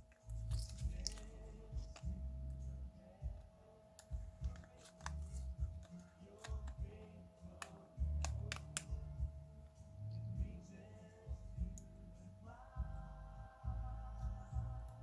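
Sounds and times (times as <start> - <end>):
handling bumps: 0.0 - 2.4, 3.2 - 7.2
faint steady tone: 0.0 - 15.0
small sharp clicks: 7.5 - 9.0.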